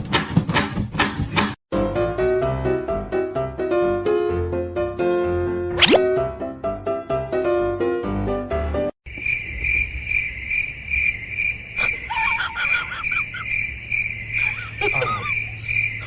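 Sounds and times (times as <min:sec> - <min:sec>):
cricket chirping: 0:09.1 - 0:16.0.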